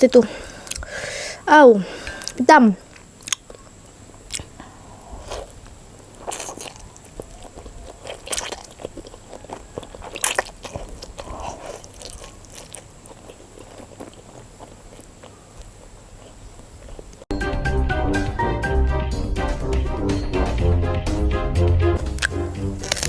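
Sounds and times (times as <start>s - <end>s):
person chewing noodles: 0.2s - 1.1s, 2.0s - 17.3s, 22.0s - 23.0s.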